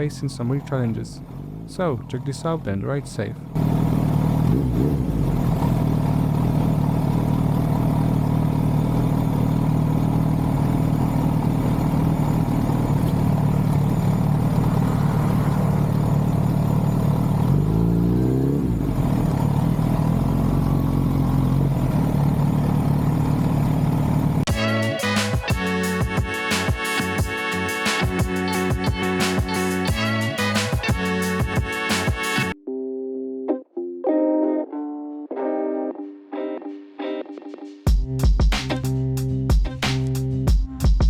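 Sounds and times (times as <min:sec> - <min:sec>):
motorcycle engine running: 0:03.4 - 0:32.6.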